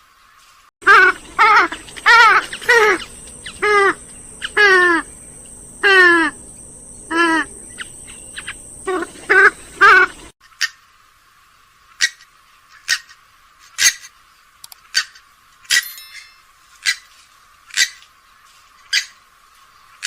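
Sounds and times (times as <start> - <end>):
swamphen calling: 0.8 - 10.3.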